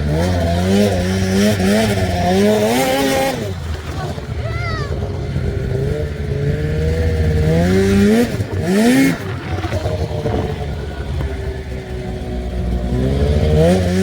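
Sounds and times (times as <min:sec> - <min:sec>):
vehicle engine revving: 0:00.0 - 0:14.0.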